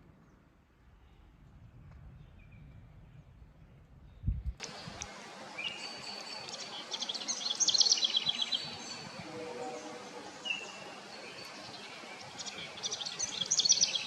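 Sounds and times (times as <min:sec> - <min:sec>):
songbirds singing: 0:02.1 - 0:14.0
rapid high bird trill: 0:04.6 - 0:14.0
steady background noise: 0:04.6 - 0:14.0.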